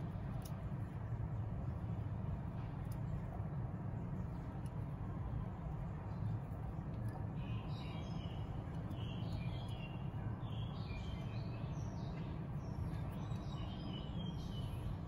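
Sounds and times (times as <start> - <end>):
small birds chirping: 7.1 - 15.0.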